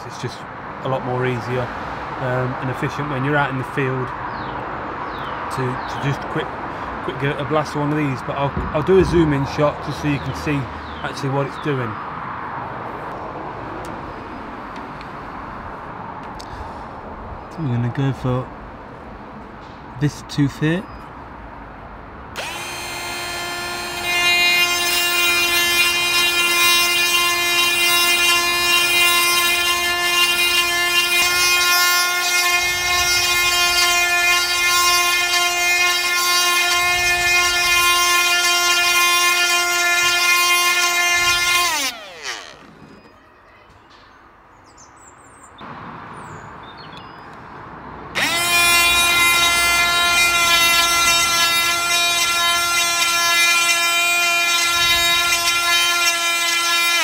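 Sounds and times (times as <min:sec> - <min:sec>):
grinding stone rasping on chain: 0:22.4 - 0:43.0, 0:48.2 - 0:57.0
grinder motor whine: 0:22.4 - 0:43.2, 0:48.1 - 0:57.0.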